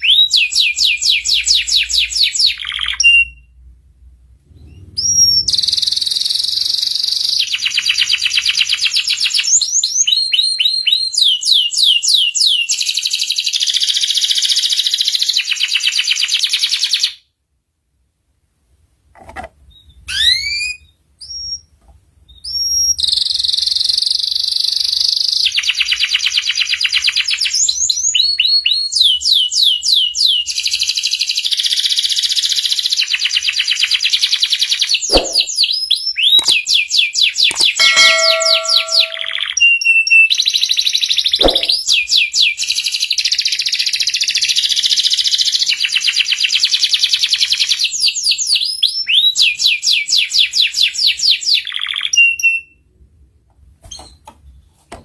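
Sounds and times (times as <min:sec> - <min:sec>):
short bird chirps: 0:37.7 - 0:39.5
canary singing trills: 0:37.7 - 0:39.6.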